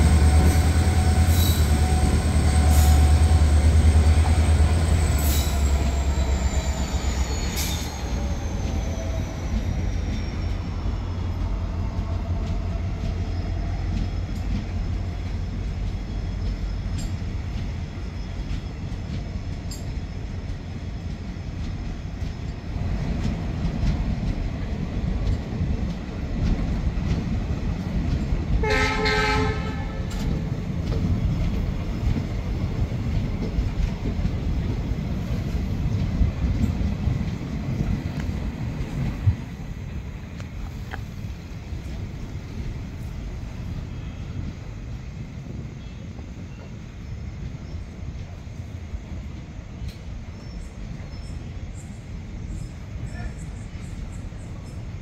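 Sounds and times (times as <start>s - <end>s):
train wagons rumbling past: 0.0s - 55.0s
faint wheel squeal: 5.0s - 11.1s
wheels clicking over rail joints: 11.2s - 43.8s
train horn: 28.6s - 30.3s.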